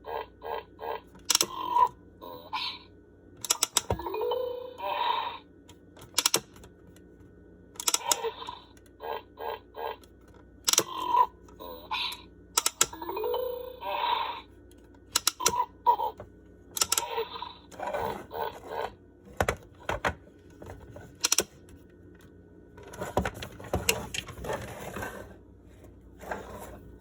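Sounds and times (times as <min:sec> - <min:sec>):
electronic toy sounds: 0:00.0 - 0:05.5, 0:07.8 - 0:10.1, 0:10.7 - 0:14.6, 0:15.2 - 0:16.2, 0:16.8 - 0:19.0
plastic toy clicks and knocks: 0:01.2 - 0:01.6, 0:03.4 - 0:04.0, 0:06.0 - 0:06.6, 0:07.8 - 0:08.2, 0:10.7 - 0:11.0, 0:12.6 - 0:13.0, 0:15.1 - 0:15.6, 0:16.7 - 0:17.1, 0:21.2 - 0:21.6.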